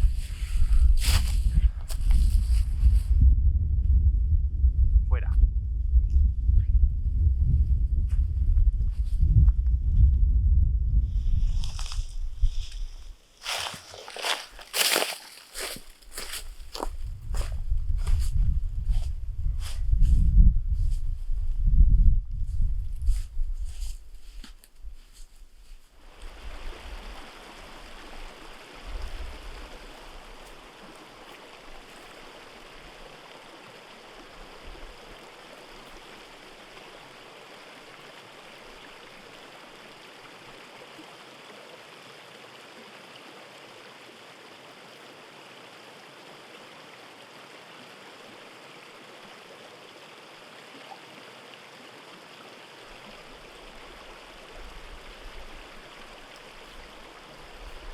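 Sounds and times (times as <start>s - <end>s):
stream flowing: 13.2s - 16.9s, 25.9s - 57.9s.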